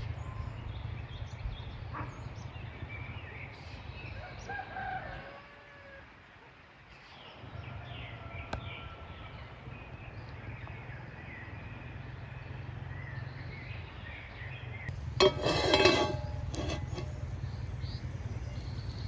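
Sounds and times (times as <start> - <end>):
small birds chirping: 12.4 - 19.0.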